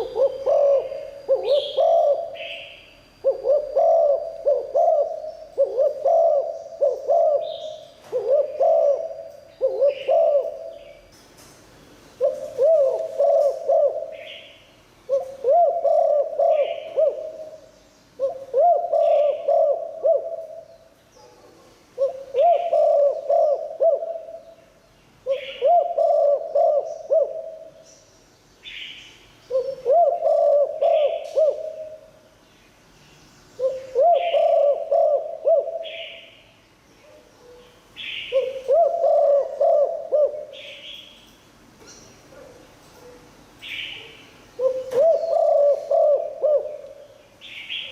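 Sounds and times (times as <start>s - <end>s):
dove cooing: 0.0s - 11.1s, 12.2s - 20.7s, 21.9s - 24.6s, 25.2s - 27.8s, 29.5s - 32.3s, 33.6s - 36.4s, 37.0s - 41.0s, 43.8s - 47.2s.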